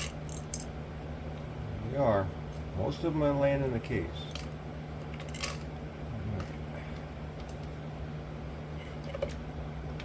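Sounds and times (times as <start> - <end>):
metal parts clicking and clinking: 0.0 - 0.7, 4.3 - 5.7
steady low hum: 0.0 - 10.0.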